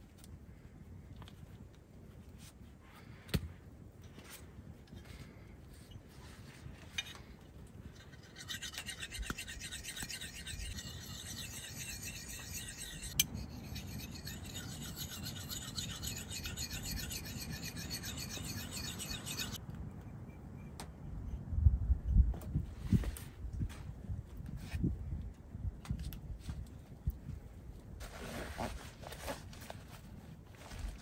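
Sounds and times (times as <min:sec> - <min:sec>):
rasping scrape: 0:04.3 - 0:19.6.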